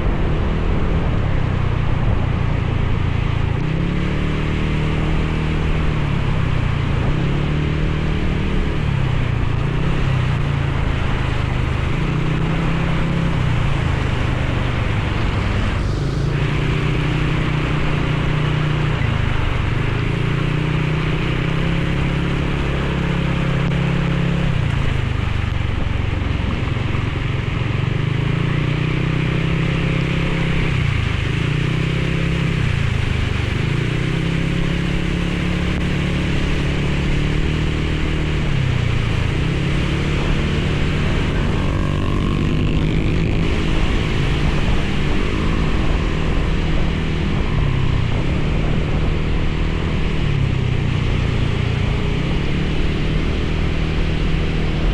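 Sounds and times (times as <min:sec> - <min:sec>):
motorcycle engine revving: 0:00.0 - 0:54.9
wind and rain hiss: 0:00.0 - 0:54.9.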